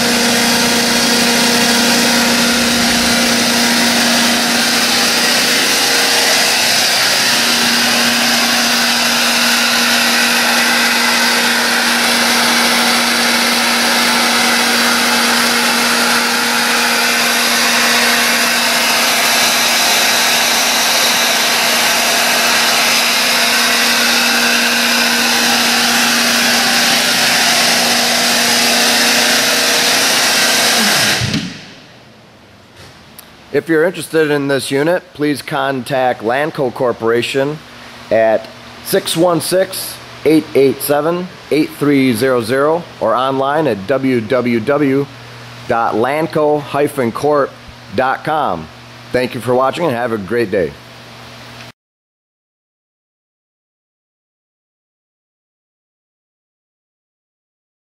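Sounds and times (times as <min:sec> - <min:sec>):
air compressor running: 0:00.0 - 0:33.2, 0:37.3 - 0:49.2.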